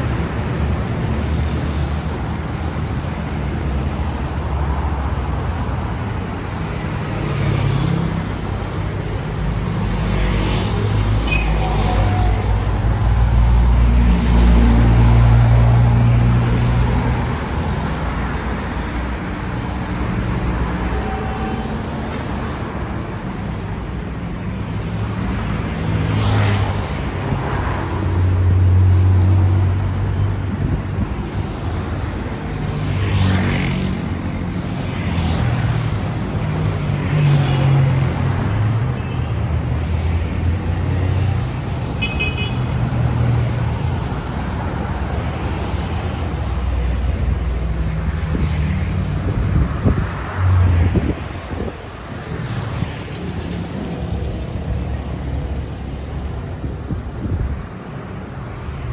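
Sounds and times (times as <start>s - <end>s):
cars driving past: 9.2s - 20.9s, 24.8s - 57.4s.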